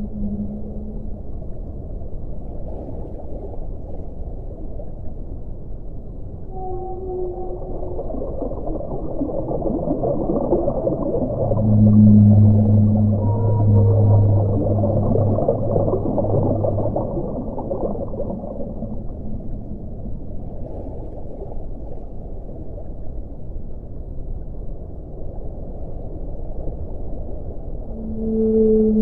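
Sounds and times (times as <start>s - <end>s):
deep moaning tone: 0.0s - 2.2s, 6.4s - 21.1s, 27.8s - 29.0s
muffled underwater rumble: 0.0s - 29.0s.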